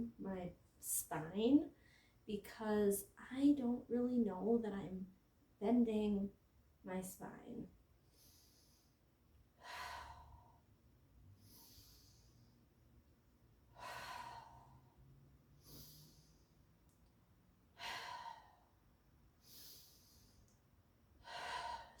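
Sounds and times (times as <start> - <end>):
woman breathing deeply: 1.8 - 2.2, 8.0 - 12.8, 13.6 - 16.8, 17.7 - 22.0.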